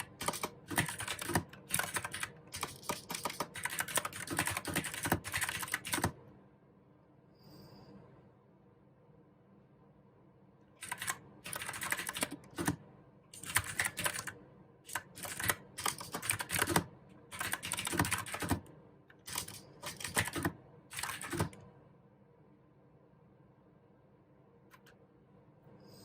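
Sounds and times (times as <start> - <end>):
clicky mechanical keyboard typing: 0.0 - 6.2, 10.8 - 21.6.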